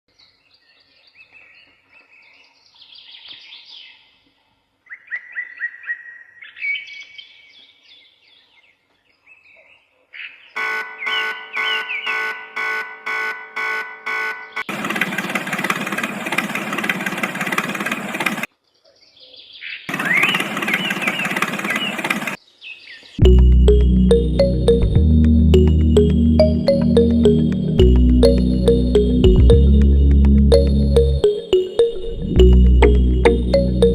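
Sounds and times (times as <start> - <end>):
birds chirping: 10.2 - 12.4, 18.1 - 23.8.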